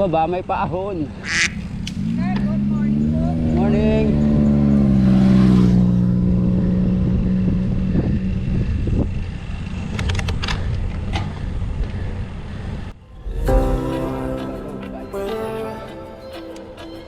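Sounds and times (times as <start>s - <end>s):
music: 13.1s - 17.0s.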